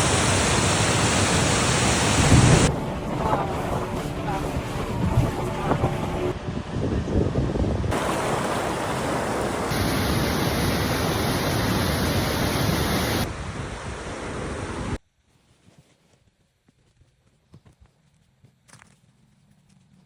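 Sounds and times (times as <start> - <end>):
rushing river water: 0.0 - 6.4, 7.9 - 15.0.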